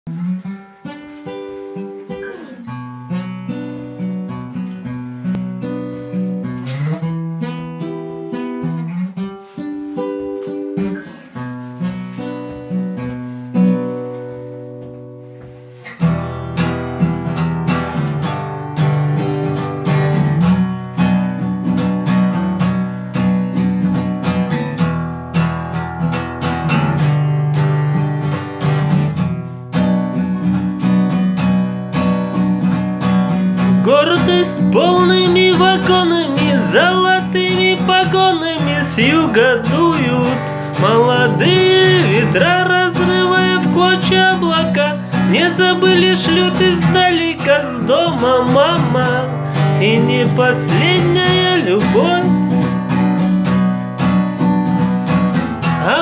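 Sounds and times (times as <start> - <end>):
acoustic guitar picking and strumming: 0.1 - 56.0.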